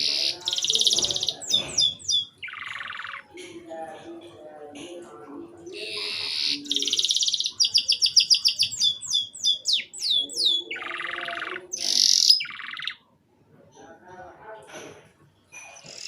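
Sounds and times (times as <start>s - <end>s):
canary singing: 0.0s - 4.4s, 5.5s - 13.1s, 15.5s - 16.0s.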